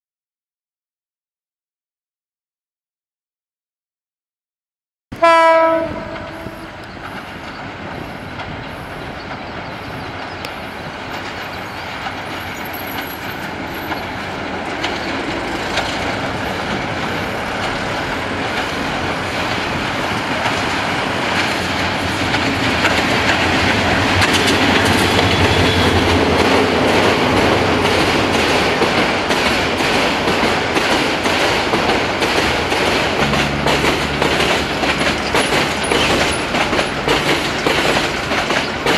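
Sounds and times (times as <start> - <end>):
train horn blast: 5.2 - 7.0, 24.4 - 26.3, 33.0 - 36.3
train engine and wheels rumbling: 5.2 - 38.9
rapid wheel clacks: 22.3 - 38.9.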